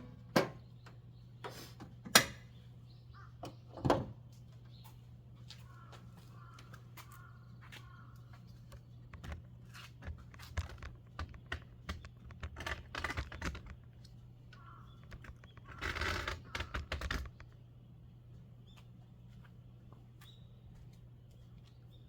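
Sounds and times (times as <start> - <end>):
rustling and scraping: 5.6 - 17.6.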